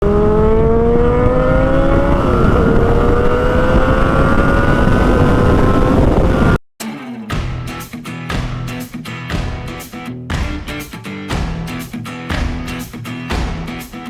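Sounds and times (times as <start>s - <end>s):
motorcycle engine accelerating: 0.0s - 6.6s
wind rush: 0.0s - 6.6s.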